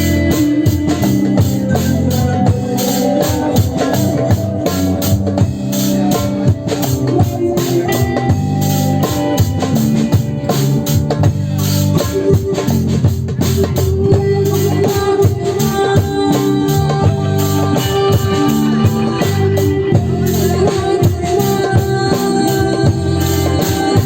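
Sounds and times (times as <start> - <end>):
band jamming live: 0.0 - 24.0
drum kit fast beat: 0.0 - 24.0.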